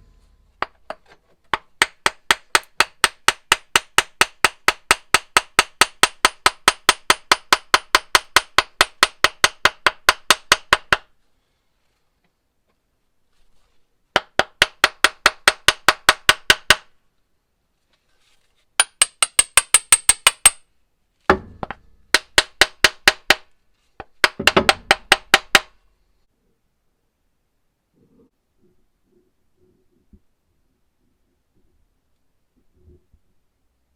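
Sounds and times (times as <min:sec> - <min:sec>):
hammer tapping: 0:00.0 - 0:11.0, 0:14.2 - 0:16.9, 0:18.8 - 0:20.6, 0:21.3 - 0:25.8
heavy hammer thuds: 0:21.3 - 0:22.1.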